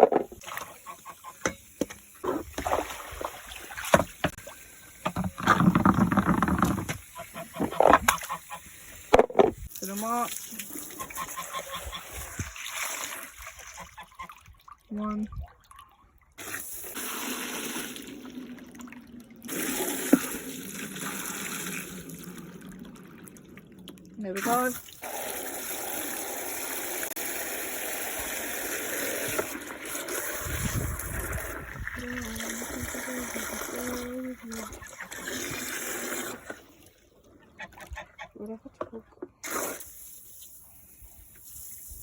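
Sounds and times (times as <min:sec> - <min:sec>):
water splashing out: 0:02.2 - 0:04.6
water splashing into container: 0:02.2 - 0:37.0
containers knocking: 0:09.1 - 0:09.6.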